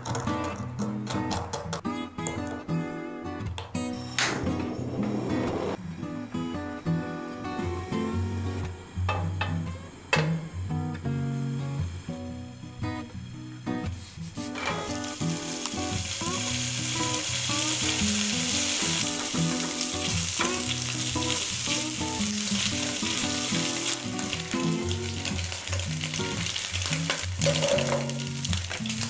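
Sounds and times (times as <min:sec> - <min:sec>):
ham sizzling in hot oil: 0:14.5 - 0:29.0.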